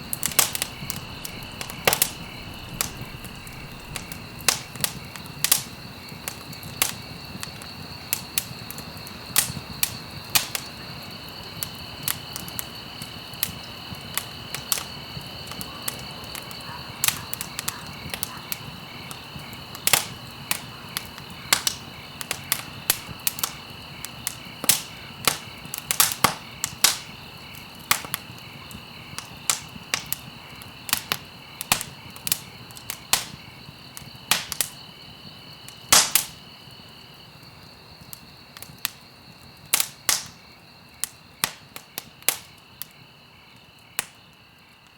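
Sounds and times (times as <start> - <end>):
low steady hiss: 0.0 - 12.9
campfire crackling and popping: 0.0 - 44.9.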